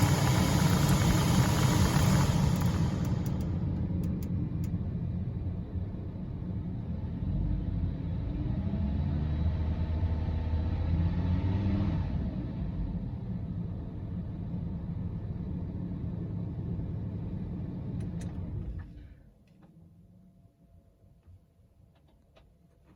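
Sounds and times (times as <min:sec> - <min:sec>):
car engine rumbling: 0:00.0 - 0:07.0.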